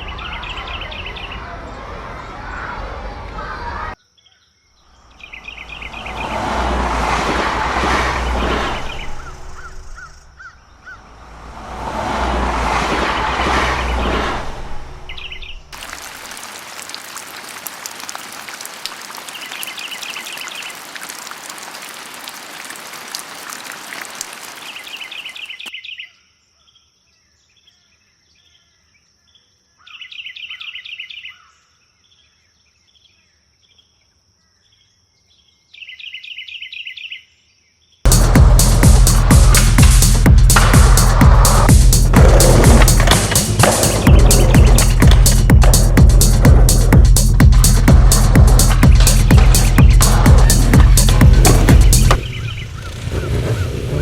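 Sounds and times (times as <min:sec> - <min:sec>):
bird chirps: 0:04.0 - 0:06.3, 0:15.1 - 0:26.9, 0:43.8 - 0:45.7, 0:48.8 - 0:53.8.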